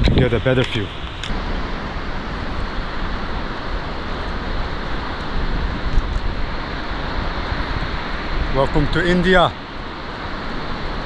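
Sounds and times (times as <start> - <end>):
waterfall roaring: 0.6 - 11.0.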